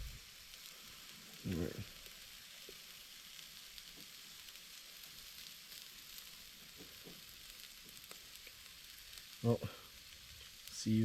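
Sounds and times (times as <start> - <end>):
hot dogs sizzling and popping: 0.0 - 11.0.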